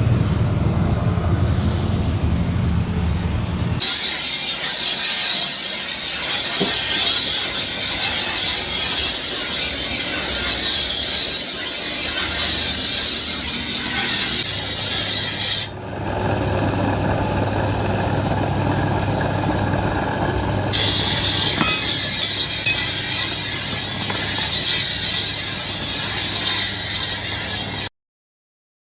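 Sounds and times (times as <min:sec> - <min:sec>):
abrasive rasping on metal: 0:03.8 - 0:15.8, 0:20.7 - 0:27.9.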